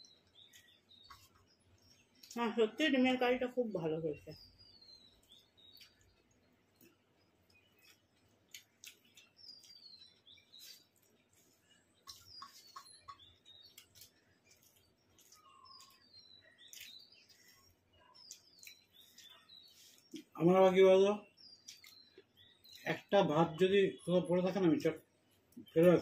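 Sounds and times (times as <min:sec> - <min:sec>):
people eating and chewing: 0:00.0 - 0:02.6, 0:04.4 - 0:23.1, 0:24.4 - 0:26.0
faint bird chirping: 0:00.0 - 0:26.0.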